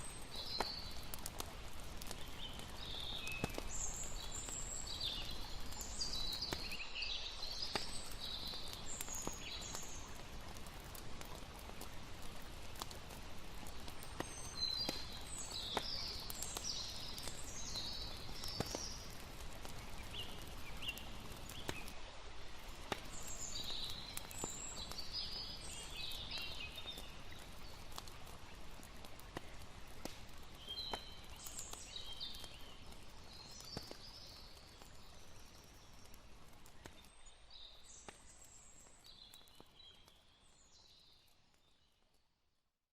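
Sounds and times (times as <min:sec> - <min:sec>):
campfire crackling: 0:00.0 - 0:42.2.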